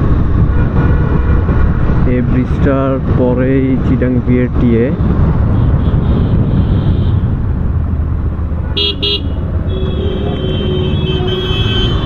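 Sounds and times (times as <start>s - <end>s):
motorcycle engine and wind rumble: 0.0s - 12.0s
road traffic: 0.0s - 12.0s
vehicle horn beeping: 8.7s - 12.0s.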